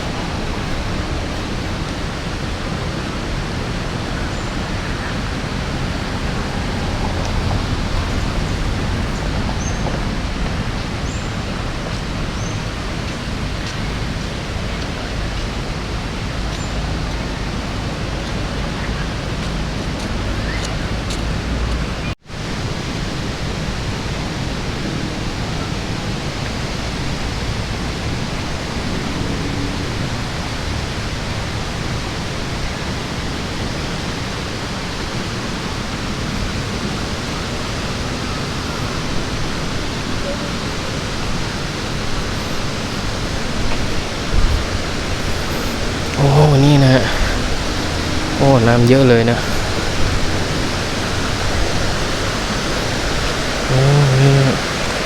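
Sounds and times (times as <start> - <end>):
fast-flowing water rushing: 0.0 - 55.0.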